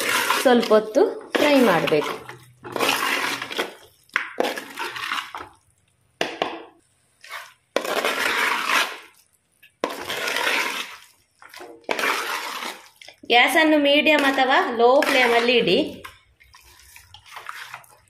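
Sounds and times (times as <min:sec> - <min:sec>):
metal ladle stirring: 0:00.0 - 0:05.9, 0:06.8 - 0:18.0.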